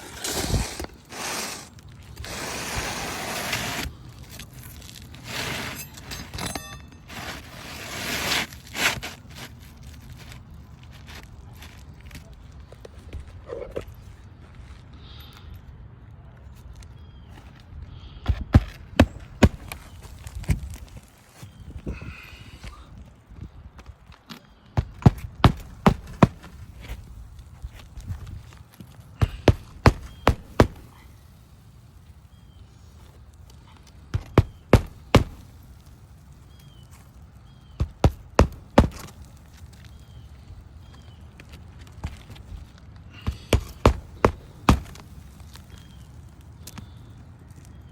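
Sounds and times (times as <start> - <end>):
low steady background noise: 0.0 - 47.9.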